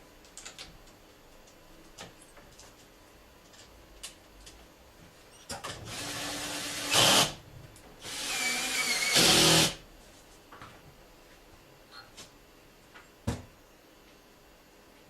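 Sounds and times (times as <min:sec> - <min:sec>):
power drill running: 0:05.9 - 0:07.4, 0:08.0 - 0:09.8.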